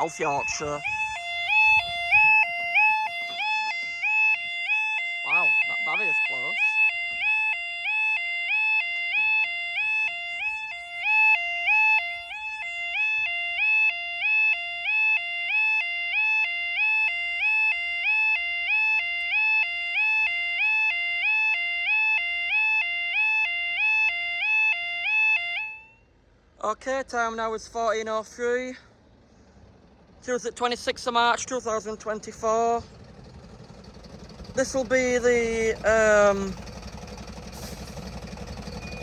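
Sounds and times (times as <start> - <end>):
level crossing two-tone alarm: 0.0 - 26.1, 37.5 - 39.0.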